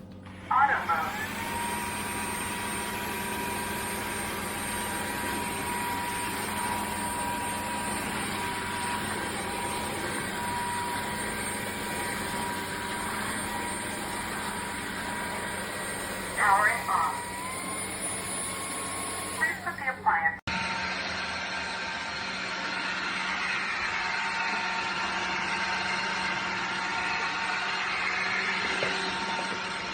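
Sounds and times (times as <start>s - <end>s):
vacuum motor whine: 0.0s - 29.9s.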